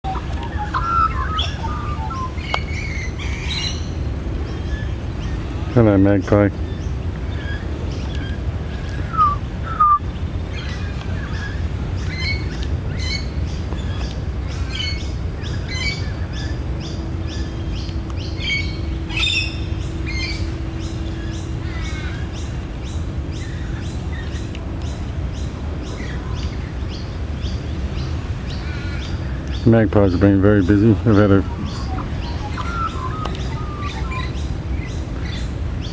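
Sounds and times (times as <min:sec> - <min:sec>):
low background rumble: 0:00.0 - 0:35.9
magpie calling: 0:00.1 - 0:03.9, 0:09.1 - 0:10.0, 0:30.7 - 0:35.4.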